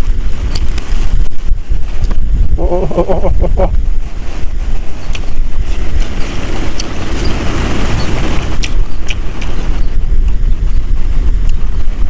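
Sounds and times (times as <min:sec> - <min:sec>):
wind buffeting microphone: 0:00.0 - 0:12.0
sharp clicks: 0:08.5 - 0:09.6.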